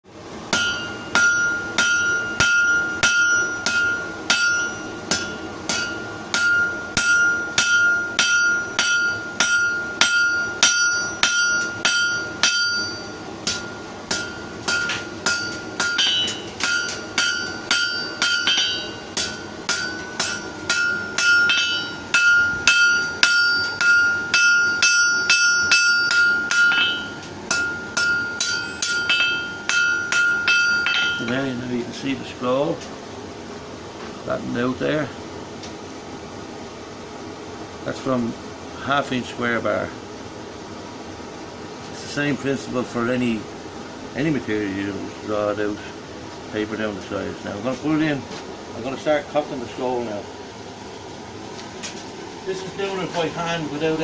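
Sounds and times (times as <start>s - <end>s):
hammer striking steel: 0.5s - 31.4s
anvil ringing: 0.5s - 31.5s.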